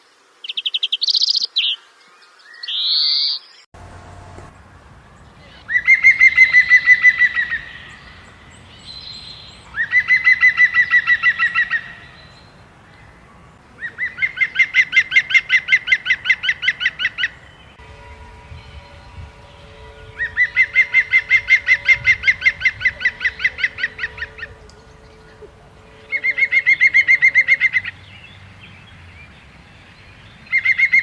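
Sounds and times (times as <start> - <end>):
bird singing rapid trills: 0.4 - 3.7.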